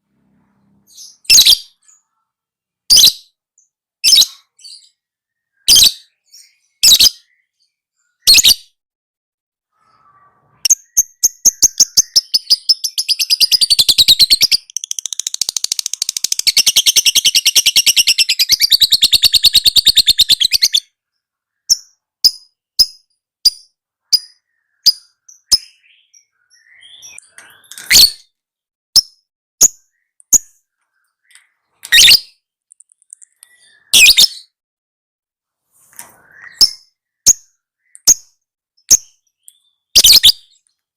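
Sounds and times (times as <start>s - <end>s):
lovebird chirps: 0.4s - 2.2s, 2.9s - 8.8s, 9.7s - 28.4s, 29.0s - 34.6s, 36.0s - 40.7s
lovebird fast chattering trill: 10.7s - 20.7s.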